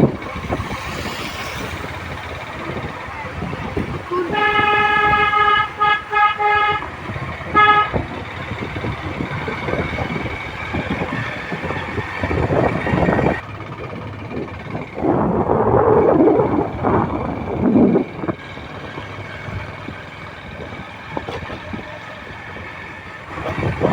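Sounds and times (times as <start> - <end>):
road vehicle noise: 0.0 - 23.9
vehicle horn beeping: 3.9 - 8.6.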